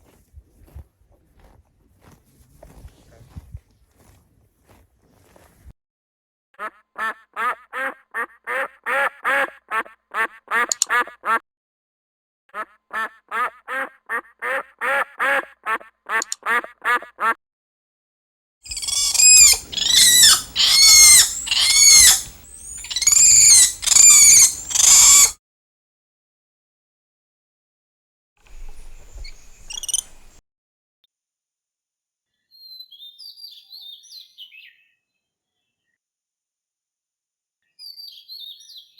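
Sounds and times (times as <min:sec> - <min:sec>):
duck quacking: 0:06.6 - 0:11.4, 0:12.5 - 0:17.4, 0:18.7 - 0:25.3.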